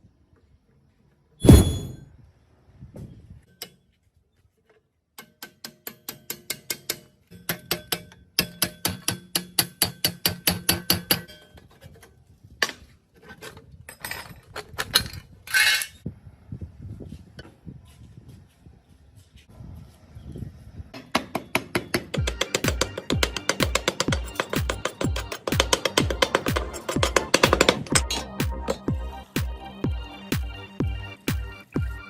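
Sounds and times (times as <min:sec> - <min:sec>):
hammer striking metal: 0:01.4 - 0:02.0
short scrape: 0:01.4 - 0:02.0.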